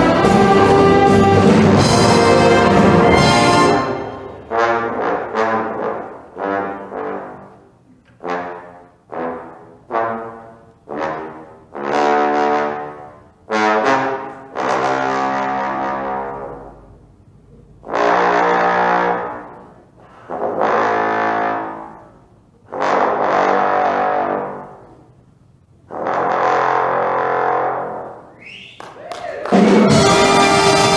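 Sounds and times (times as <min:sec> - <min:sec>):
wind band playing chords: 0:00.0 - 0:25.1, 0:25.9 - 0:28.3, 0:29.4 - 0:30.9.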